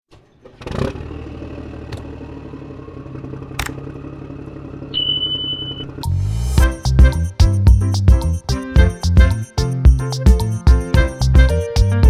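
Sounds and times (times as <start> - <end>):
steady high tone: 5.8 - 12.0.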